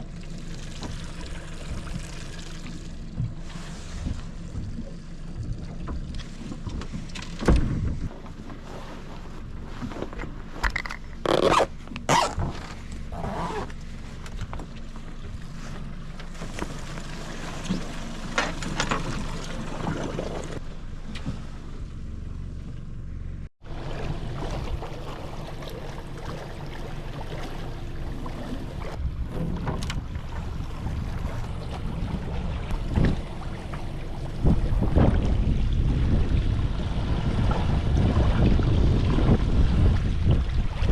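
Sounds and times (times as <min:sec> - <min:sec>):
boat motor running: 0:00.0 - 0:40.9
wind on microphone: 0:28.6 - 0:40.9.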